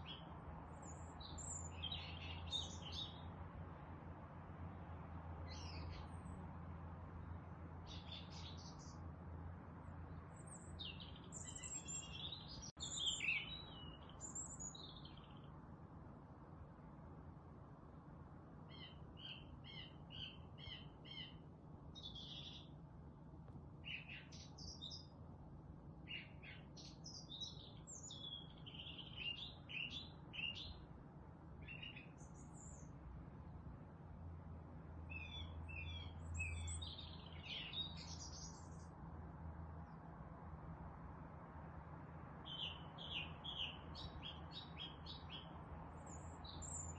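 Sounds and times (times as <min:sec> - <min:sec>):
songbirds chirping and singing: 0:00.0 - 0:03.4, 0:05.5 - 0:06.4, 0:09.9 - 0:15.5, 0:18.7 - 0:21.4, 0:22.0 - 0:22.8, 0:23.9 - 0:25.2, 0:26.1 - 0:30.8, 0:31.6 - 0:33.0, 0:35.0 - 0:38.9, 0:42.4 - 0:46.9.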